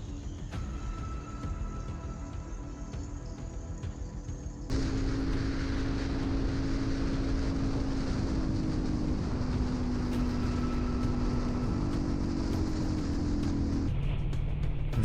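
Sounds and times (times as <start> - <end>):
motorcycle engine running: 4.7 - 15.0
wind rumble: 4.7 - 15.0.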